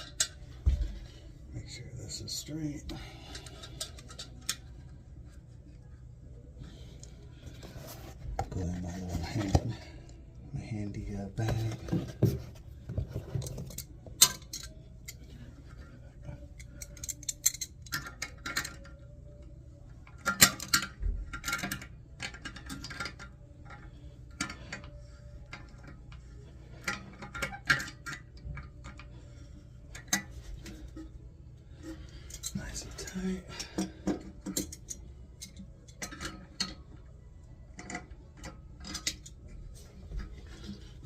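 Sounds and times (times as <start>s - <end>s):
hand tools clicking and clinking: 16.6s - 19.1s.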